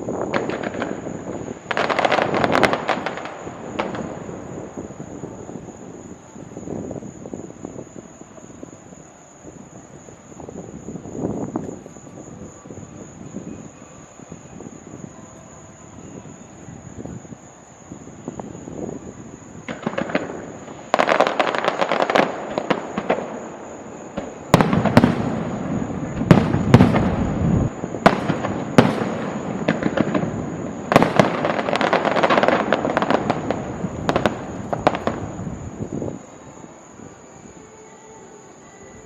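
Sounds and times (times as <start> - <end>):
deep firework booms: 0.0 - 8.4, 18.1 - 36.3
fireworks bangs and crackling: 0.0 - 15.2, 15.9 - 37.1.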